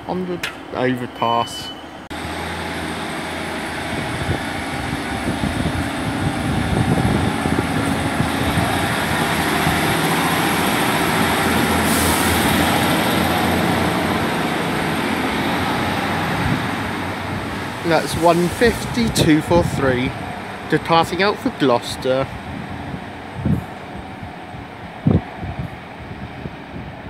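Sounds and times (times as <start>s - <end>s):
diesel train engine running: 0.0s - 27.0s
high hiss: 17.8s - 19.1s.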